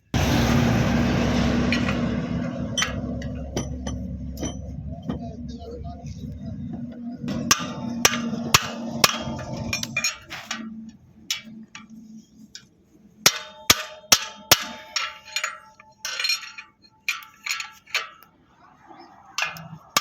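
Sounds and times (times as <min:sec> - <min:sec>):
hammer striking metal: 0:00.0 - 0:12.0, 0:13.3 - 0:18.2
low hum: 0:00.0 - 0:13.2.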